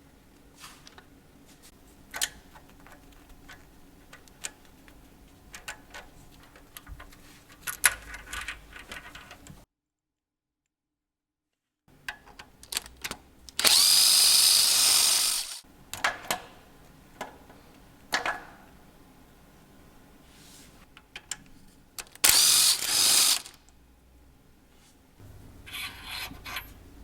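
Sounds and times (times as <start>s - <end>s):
tools clicking and knocking: 2.1s - 9.6s
cordless drill whining: 13.6s - 15.6s, 22.2s - 23.6s.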